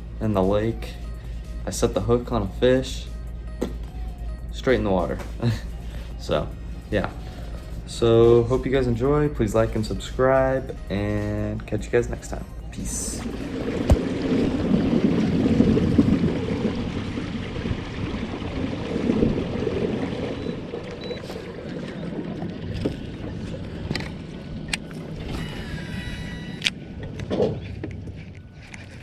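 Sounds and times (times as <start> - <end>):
wind: 8.0 - 29.0
rush of water: 13.2 - 26.6.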